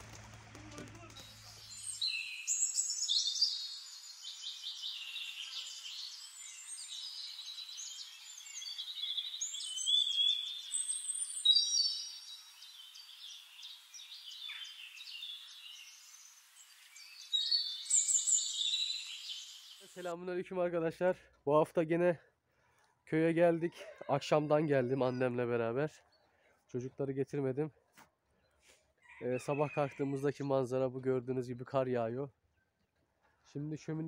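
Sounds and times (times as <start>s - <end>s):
small songbirds chirping: 1.0s - 20.1s.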